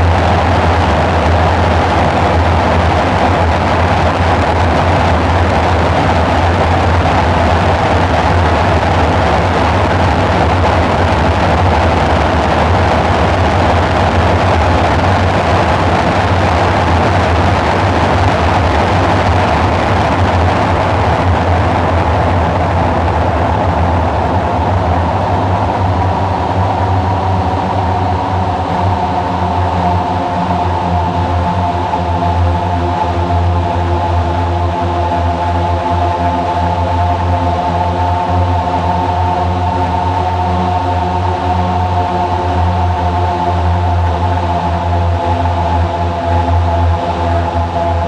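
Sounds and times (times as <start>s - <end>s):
steady pitched tones: 0.0s - 26.3s
dark synthesizer drone: 0.0s - 48.0s.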